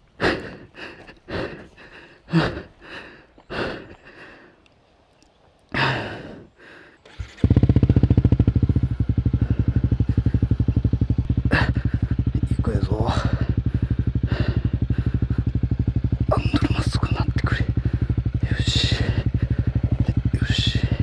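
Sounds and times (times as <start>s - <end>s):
person breathing hard: 0.2s - 4.6s, 5.7s - 7.2s, 9.3s - 10.7s, 11.5s - 12.4s, 13.2s - 16.0s, 17.7s - 21.0s
motorcycle engine idling: 6.9s - 21.0s.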